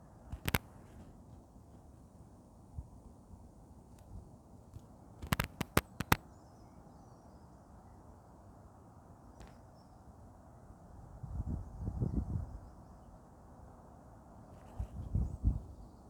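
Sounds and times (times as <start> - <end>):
outdoor background noise: 0.0 - 16.0
sharp clicks: 0.3 - 0.7, 5.2 - 6.2.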